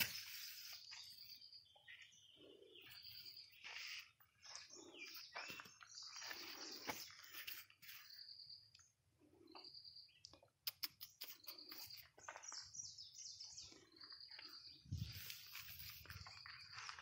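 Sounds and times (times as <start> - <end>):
faint bird chirps: 0.0 - 17.0
sharp clicks: 10.2 - 12.0.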